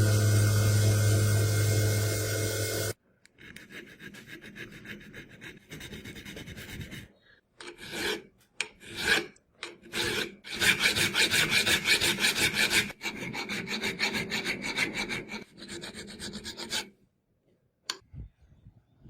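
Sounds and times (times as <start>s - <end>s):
power tool motor cutting off: 0.0s - 3.0s
hand file rasping on metal: 2.8s - 16.9s.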